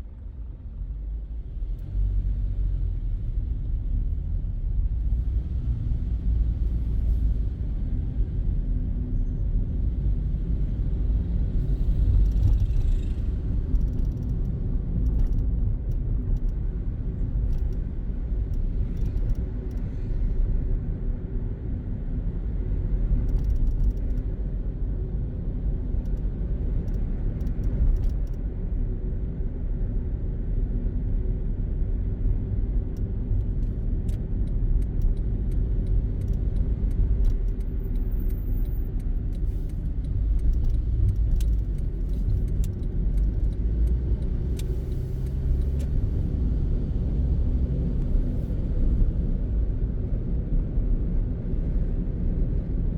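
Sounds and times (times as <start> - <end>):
car engine and road rumble: 0.0 - 52.9
faint clicks: 12.1 - 16.6, 23.3 - 24.2, 33.4 - 46.0.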